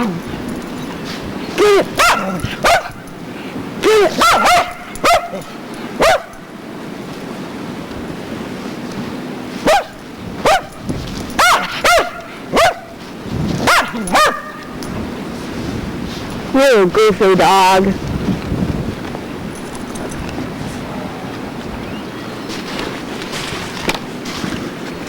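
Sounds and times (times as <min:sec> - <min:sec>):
dog barking: 0:01.6 - 0:03.1, 0:03.8 - 0:06.5, 0:09.6 - 0:13.0, 0:13.6 - 0:14.8.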